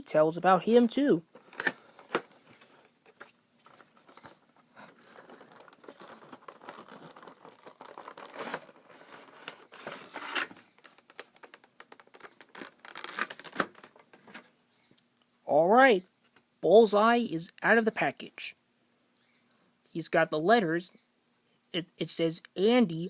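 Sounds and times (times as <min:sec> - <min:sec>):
packaging rustling and crinkling: 0:01.3 - 0:14.5.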